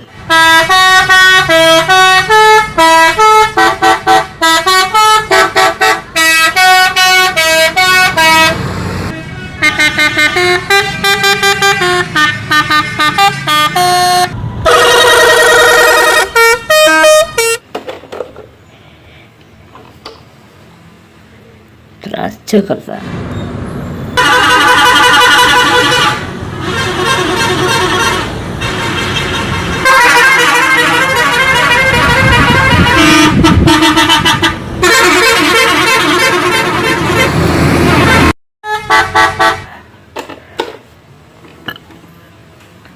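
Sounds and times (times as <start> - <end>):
multi-tone bus horn melody: 0.0 - 17.6, 24.2 - 39.8
faint background noise: 17.6 - 24.2.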